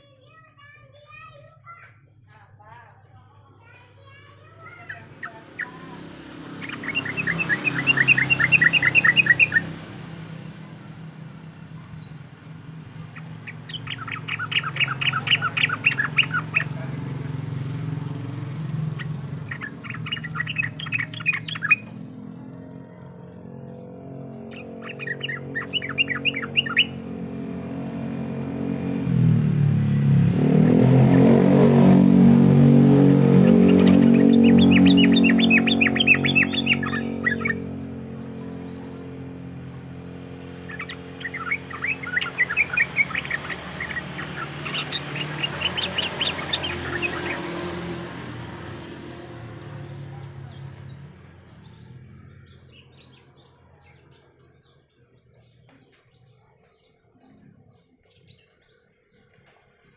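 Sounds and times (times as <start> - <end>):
bulbul chattering song: 0.0 - 22.2, 23.7 - 59.9
low drone: 21.8 - 52.1.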